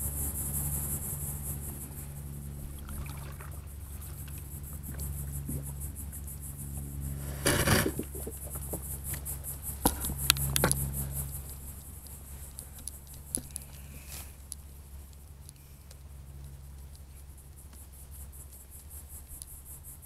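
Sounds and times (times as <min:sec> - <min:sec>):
insects trilling: 0:00.0 - 0:20.0
water splashes around kayak: 0:02.6 - 0:05.0.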